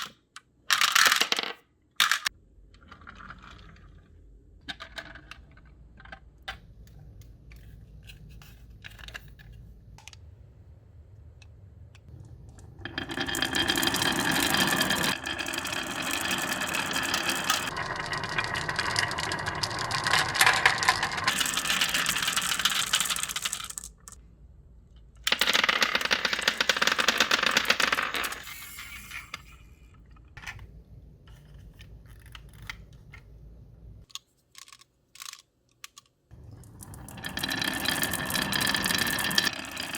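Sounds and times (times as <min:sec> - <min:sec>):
marbles rattling down wooden run: 0:12.8 - 0:24.2, 0:25.3 - 0:28.4, 0:37.2 - 0:39.9.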